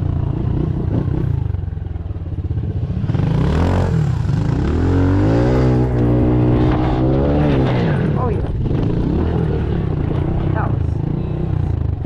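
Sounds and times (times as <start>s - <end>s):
pit bike engine revving: 2.7s - 12.0s
bike rattling: 4.3s - 12.0s.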